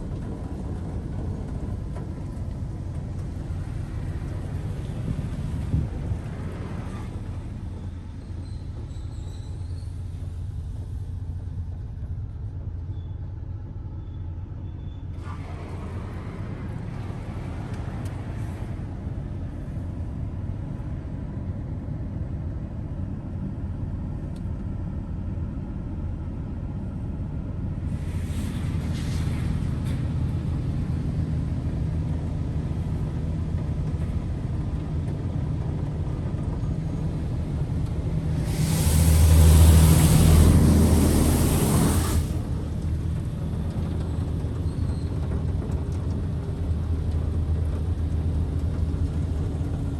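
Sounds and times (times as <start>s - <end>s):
hiss of spray: 27.9s - 30.1s, 38.4s - 42.6s.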